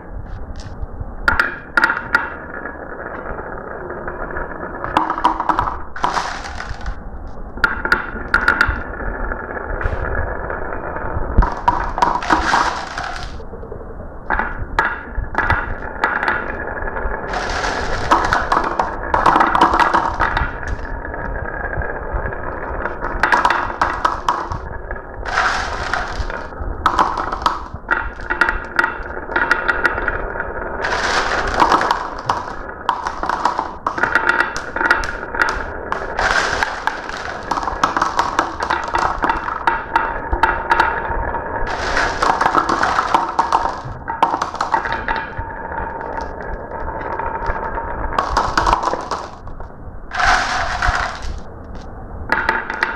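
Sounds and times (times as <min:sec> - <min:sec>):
marbles rolling down a track: 0:01.3 - 0:13.4, 0:14.3 - 0:52.9
marbles clicking and rattling: 0:04.8 - 0:07.0, 0:11.4 - 0:13.4, 0:17.3 - 0:21.4, 0:22.2 - 0:52.9.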